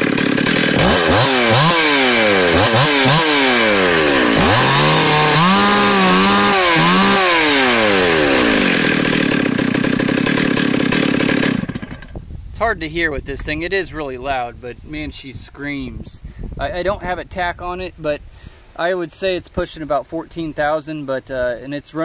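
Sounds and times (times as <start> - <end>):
chainsaw revving: 0.0 - 12.2.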